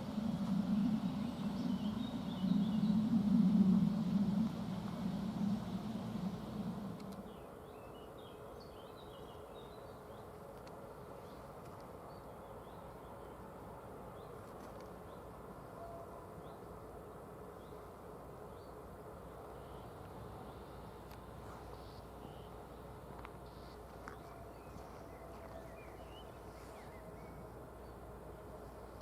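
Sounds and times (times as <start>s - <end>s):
low rumble: 0.0s - 7.3s
steady low hum: 0.0s - 8.8s
faint bird chirps: 0.0s - 10.3s, 21.6s - 22.7s, 23.4s - 29.0s.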